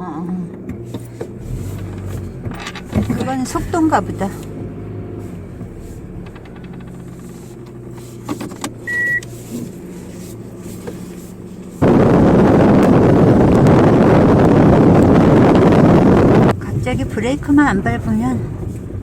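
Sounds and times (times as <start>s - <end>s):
car engine and road hum: 0.0s - 19.0s
short high beep: 8.9s - 9.2s
wind rushing on microphone: 11.8s - 18.6s.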